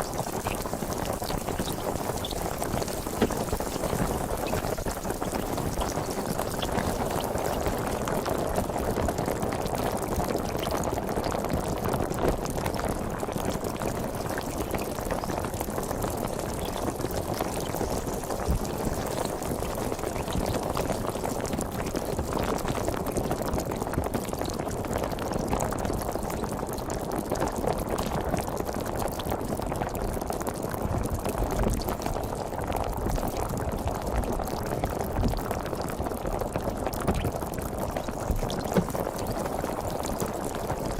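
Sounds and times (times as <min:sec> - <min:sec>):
sparkling water fizzing: 0:00.0 - 0:09.7, 0:14.1 - 0:21.5, 0:36.7 - 0:40.9.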